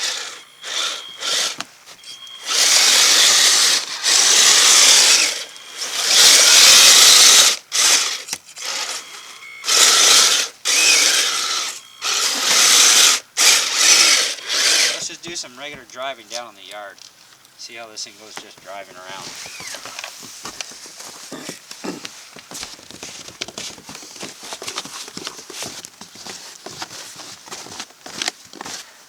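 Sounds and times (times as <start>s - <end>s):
electric motor and gears whirring: 0.0s - 16.5s, 18.1s - 26.9s
tracks scraping through snow: 19.0s - 28.9s.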